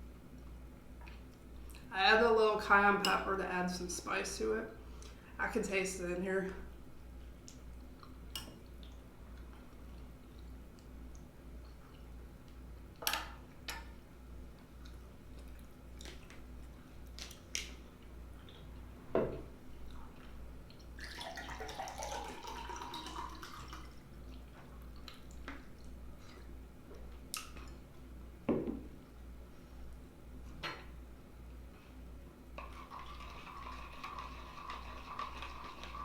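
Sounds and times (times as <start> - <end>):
chewing sounds: 14.6 - 17.7.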